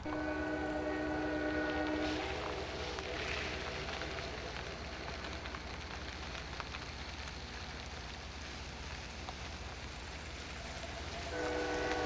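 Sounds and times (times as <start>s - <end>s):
crackling hiss: 0.0s - 12.0s
distant train rumble: 0.0s - 12.0s
faint clicks: 1.5s - 11.1s.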